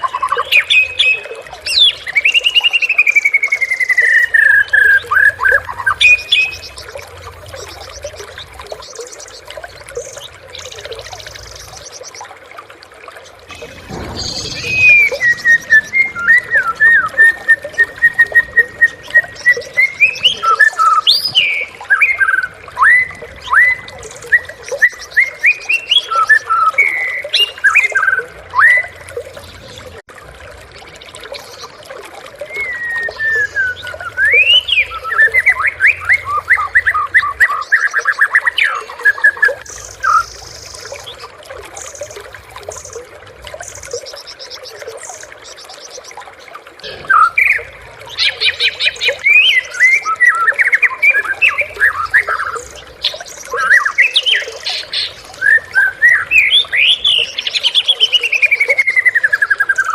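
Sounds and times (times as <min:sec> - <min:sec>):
bird singing whistled phrases: 0:13.5 - 0:29.0, 0:32.5 - 0:41.0, 0:46.8 - 0:54.8, 0:55.4 - 0:59.9.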